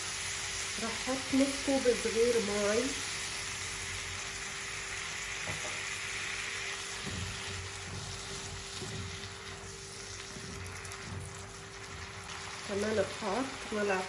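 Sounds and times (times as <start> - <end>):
vegetables sizzling in oil: 0.0 - 14.0
spatula scraping and knocking: 7.0 - 12.4.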